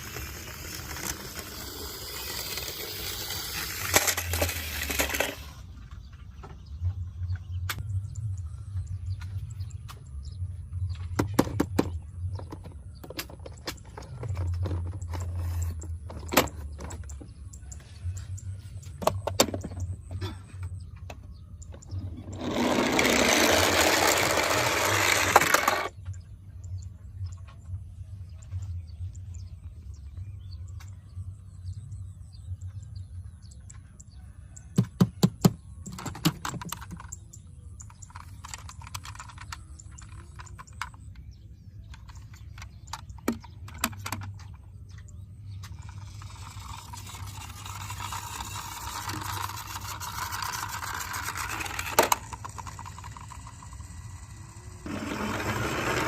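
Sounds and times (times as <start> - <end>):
toy vehicle parts clicking: 0.0 - 5.7, 21.6 - 26.0, 35.8 - 56.0.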